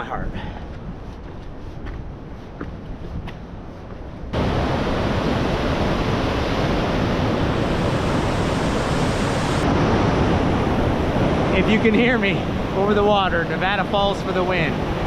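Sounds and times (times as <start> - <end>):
waterfall rushing: 4.4 - 15.0.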